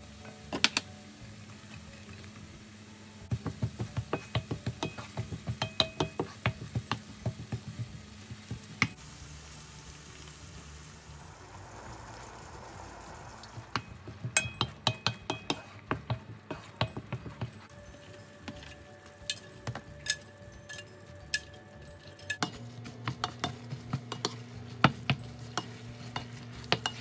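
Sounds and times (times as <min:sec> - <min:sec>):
soft sizzle: 0:00.0 - 0:27.0
spatula knocking on frying pan: 0:03.3 - 0:08.9, 0:14.0 - 0:17.6, 0:22.9 - 0:27.0.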